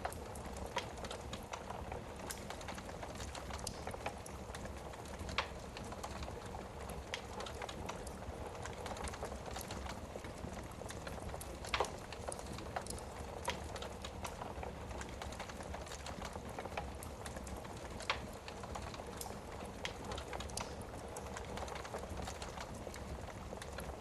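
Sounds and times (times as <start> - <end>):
wood fire crackling: 0.0 - 24.0
fire pops: 7.1 - 22.7.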